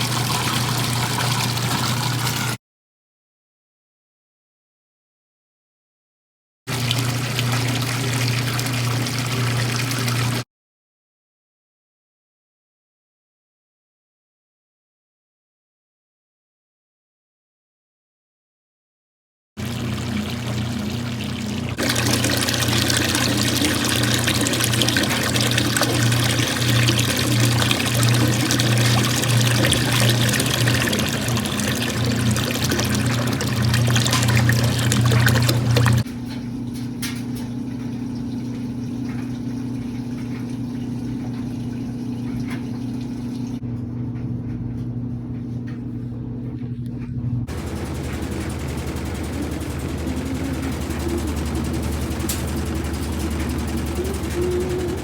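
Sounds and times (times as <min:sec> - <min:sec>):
water running: 0:00.0 - 0:02.6, 0:06.7 - 0:10.4, 0:19.6 - 0:36.1, 0:37.2 - 0:43.6, 0:47.4 - 0:55.0
steady low hum: 0:19.6 - 0:55.0.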